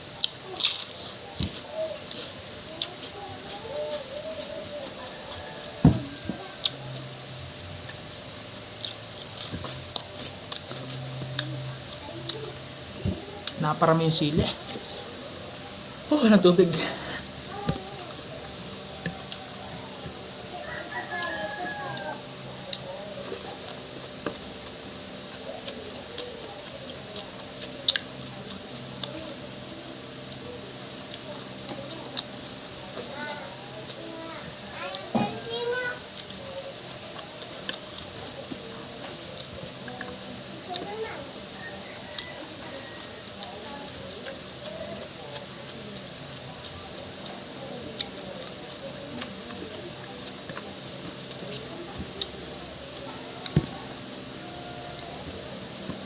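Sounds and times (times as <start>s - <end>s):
quiet eating sounds: 0.0s - 56.0s
person chewing: 0.2s - 7.2s, 7.8s - 12.4s, 13.4s - 13.9s, 19.0s - 20.3s, 31.0s - 32.6s, 36.1s - 54.2s.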